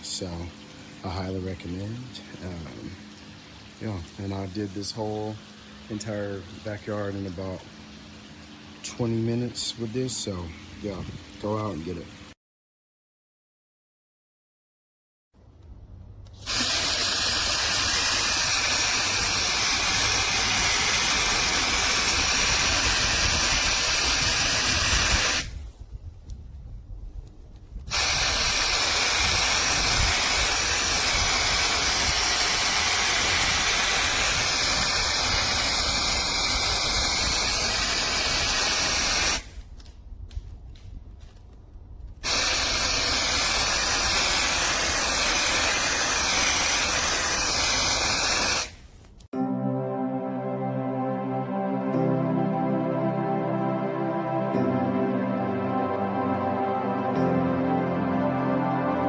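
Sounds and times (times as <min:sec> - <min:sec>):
hose sprayer hissing: 0:00.0 - 0:12.1, 0:16.3 - 0:25.7, 0:27.9 - 0:39.6, 0:42.2 - 0:49.1.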